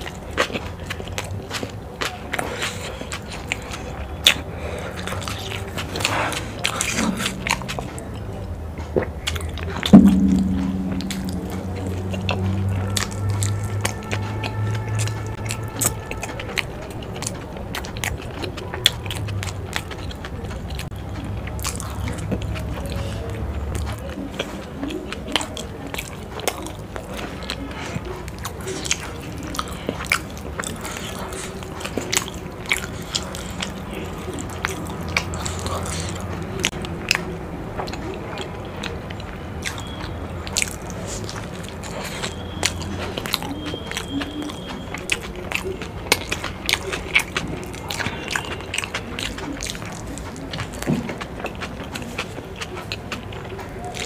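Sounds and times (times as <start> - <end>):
wet chewing and lip smacks: 0.0 - 10.0, 12.2 - 54.0
sharp knock: 9.9 - 12.2.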